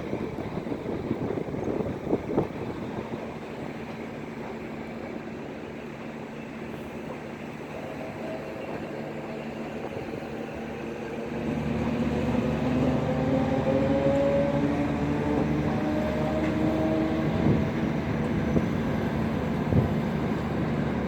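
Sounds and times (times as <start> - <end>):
train rumble: 0.0 - 21.0
electric train motor whine: 11.3 - 21.0.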